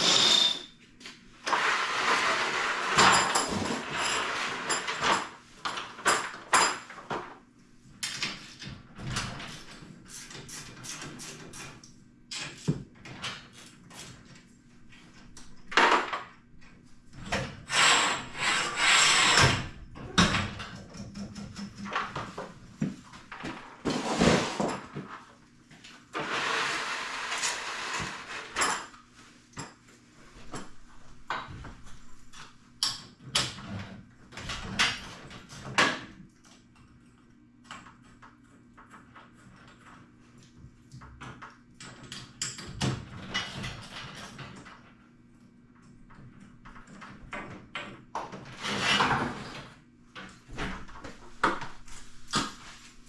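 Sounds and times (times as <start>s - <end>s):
tool rasping on metal: 17.7s - 19.5s.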